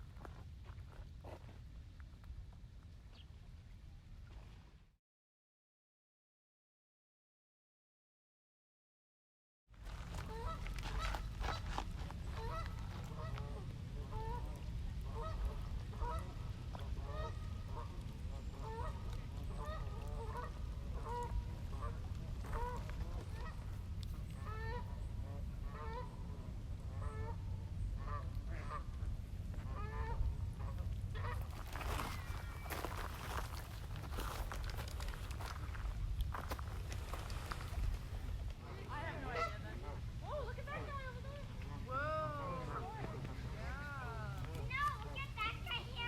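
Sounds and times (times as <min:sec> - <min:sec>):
low steady rumble: 0:09.8 - 0:46.0
geese honking: 0:10.2 - 0:11.6, 0:12.3 - 0:23.7, 0:24.4 - 0:26.3, 0:38.6 - 0:43.5.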